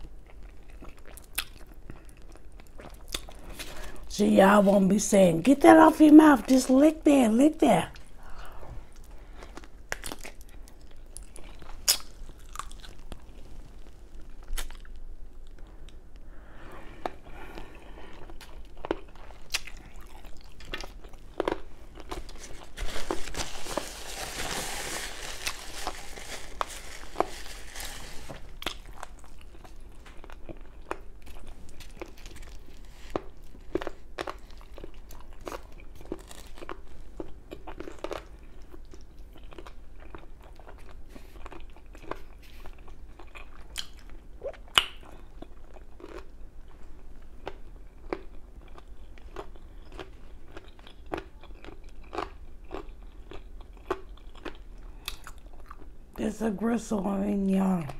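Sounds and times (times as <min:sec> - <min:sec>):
chewing chicken: 0:00.0 - 0:03.8, 0:08.9 - 0:16.0, 0:17.0 - 0:23.4, 0:25.3 - 0:55.9
wet mouth clicks and smacks: 0:43.8 - 0:45.1.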